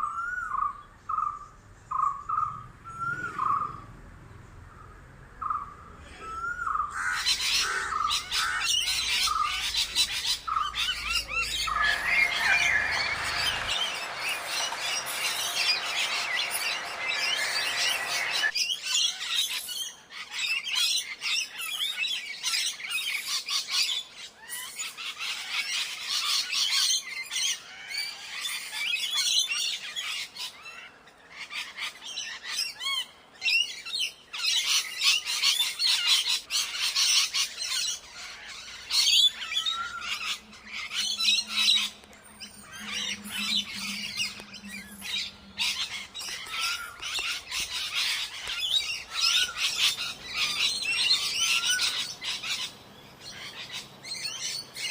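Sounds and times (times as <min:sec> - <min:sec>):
birds chirping and squawking: 0:04.8 - 0:54.9
whistled bird notes: 0:06.2 - 0:19.6, 0:36.5 - 0:54.9.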